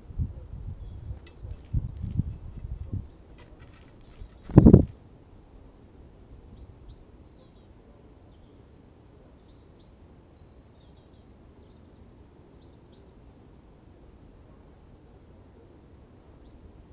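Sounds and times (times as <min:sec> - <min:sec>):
low background noise: 0:00.0 - 0:16.9
faint high bird chirps: 0:00.8 - 0:04.7, 0:05.3 - 0:08.7, 0:09.4 - 0:13.3, 0:14.2 - 0:15.8, 0:16.4 - 0:16.9.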